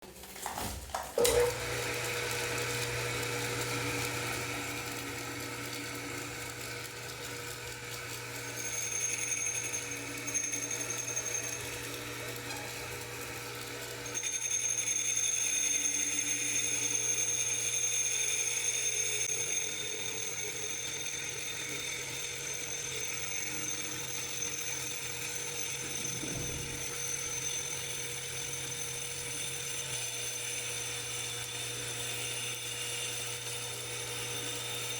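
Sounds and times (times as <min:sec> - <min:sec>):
lathe motor humming: 0:01.2 - 0:34.9
high-pitched whine: 0:25.8 - 0:27.6.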